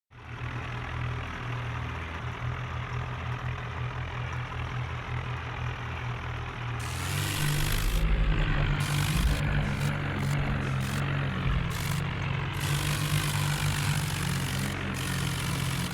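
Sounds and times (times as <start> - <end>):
diesel tractor engine running: 0.3 - 15.9
loud rushing hiss: 6.8 - 15.9.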